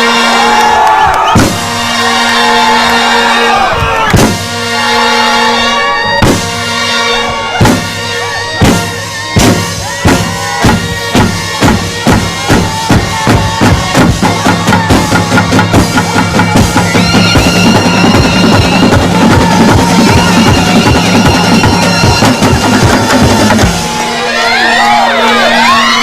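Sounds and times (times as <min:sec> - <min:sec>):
wind instruments holding long notes: 0:00.0 - 0:26.0
drum strokes: 0:01.3 - 0:02.0, 0:04.1 - 0:04.8, 0:06.0 - 0:24.3.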